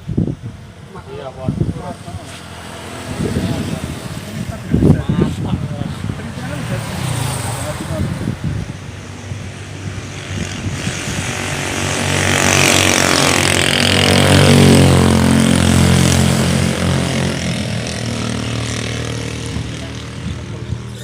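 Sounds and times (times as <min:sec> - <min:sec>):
vehicle passing by: 0:00.9 - 0:21.0.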